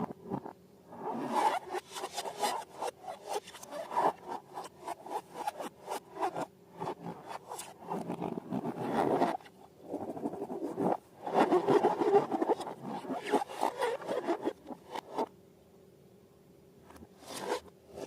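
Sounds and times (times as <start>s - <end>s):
crackly rubbing and scraping: 0.0s - 15.3s, 16.9s - 18.0s.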